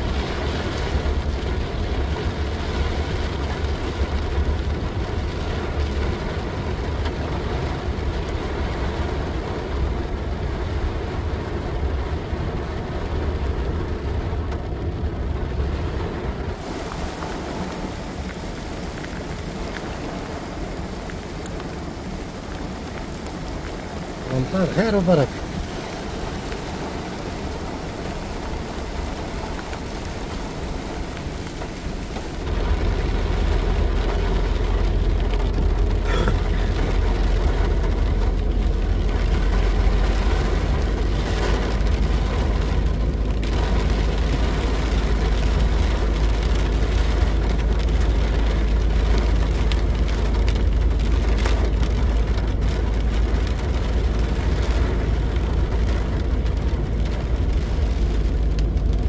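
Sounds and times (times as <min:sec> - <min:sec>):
rain falling: 0:00.0 - 0:59.0
steady low rumble: 0:25.2 - 0:59.0.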